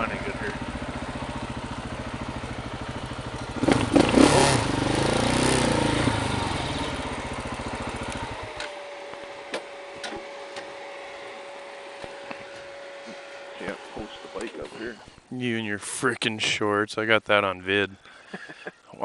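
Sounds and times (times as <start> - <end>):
motorcycle engine running: 0.0 - 15.1.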